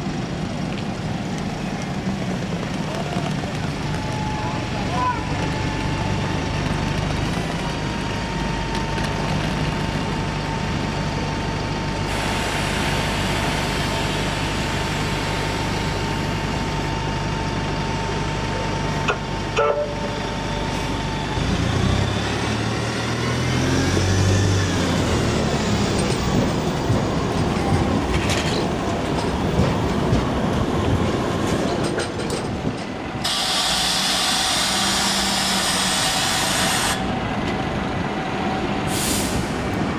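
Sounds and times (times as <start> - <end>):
vehicles humming at a stop: 0.0 - 39.9
air hiss: 12.1 - 16.4, 33.2 - 37.1, 38.9 - 39.6
engine revving and whining: 20.3 - 26.4.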